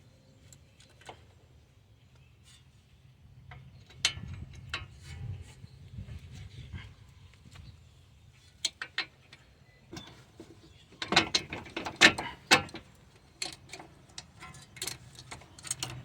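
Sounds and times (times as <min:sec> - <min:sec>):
metal parts clinking and knocking: 0:11.0 - 0:16.0.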